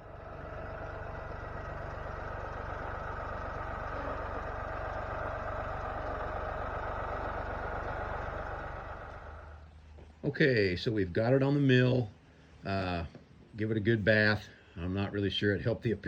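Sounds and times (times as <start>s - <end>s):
engine running steadily: 0.0s - 11.2s.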